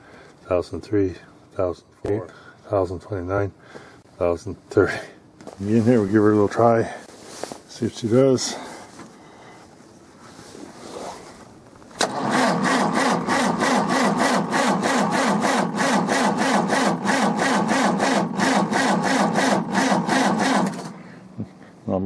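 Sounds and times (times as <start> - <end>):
diesel engine cranking without firing: 12.0 - 21.1.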